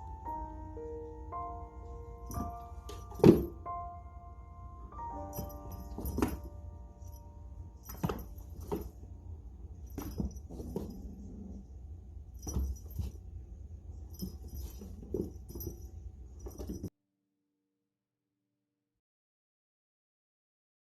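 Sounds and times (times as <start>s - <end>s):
metallic jingling: 2.2s - 3.6s, 5.3s - 7.2s, 7.8s - 9.0s, 9.8s - 11.7s, 12.4s - 13.3s, 13.9s - 16.9s.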